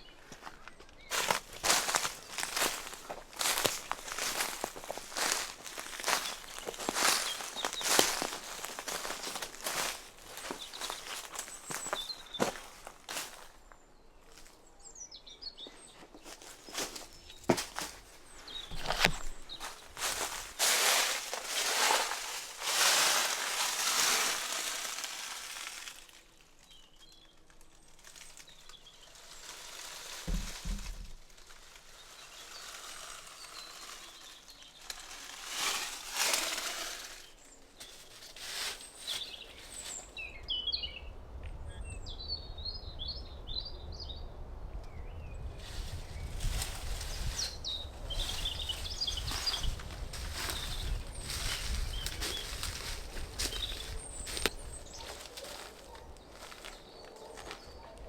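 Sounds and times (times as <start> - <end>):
rustling and crunching: 0.0 - 14.6, 15.6 - 40.4, 45.6 - 58.0
small bird chirping: 44.9 - 58.0.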